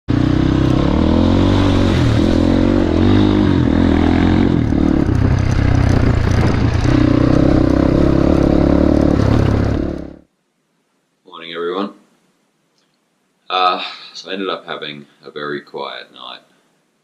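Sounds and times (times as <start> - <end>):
dirt bike engine revving: 0.1 - 10.2.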